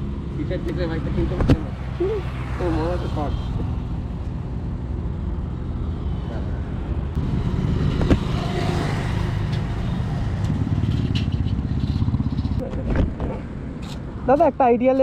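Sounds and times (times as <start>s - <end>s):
motorcycle engine idling: 10.2s - 12.6s.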